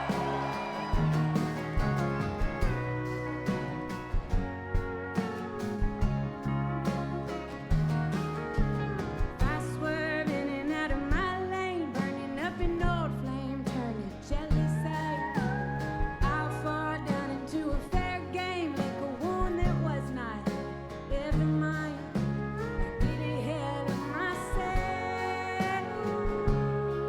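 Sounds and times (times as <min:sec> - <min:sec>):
live indie rock band: 0:00.0 - 0:27.0
woman singing: 0:09.3 - 0:27.0.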